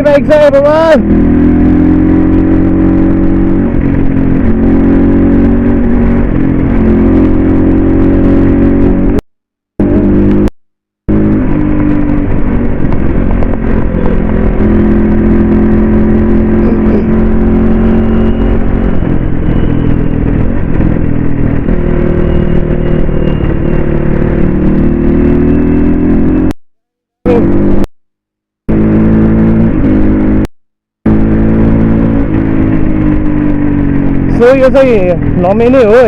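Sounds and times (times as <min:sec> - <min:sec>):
dirt bike engine revving: 0:00.6 - 0:09.2, 0:11.1 - 0:26.5.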